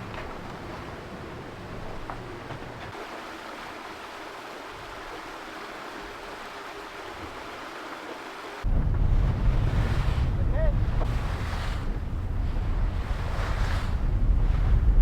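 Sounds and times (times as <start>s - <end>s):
water rushing past yacht hull: 0.0s - 15.0s.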